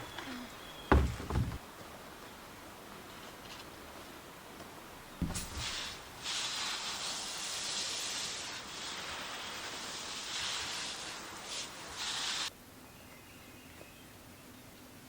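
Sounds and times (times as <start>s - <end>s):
low thump: 0.9s - 1.6s, 5.2s - 5.8s
spraying hiss: 5.2s - 12.5s.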